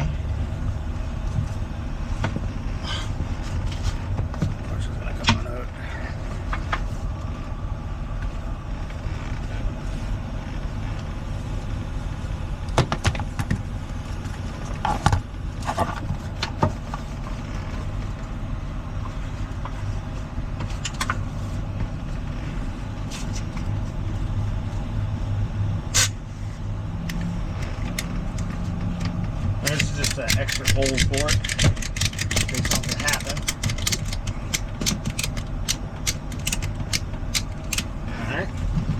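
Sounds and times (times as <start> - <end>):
truck engine idling: 23.8 - 38.5
sharp clicks and knocks: 27.1 - 37.9.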